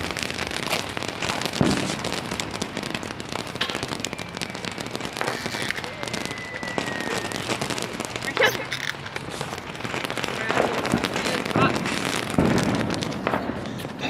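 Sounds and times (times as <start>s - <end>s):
fireworks crackling and popping: 0.0s - 14.0s
whistle dropping in pitch: 4.0s - 7.5s.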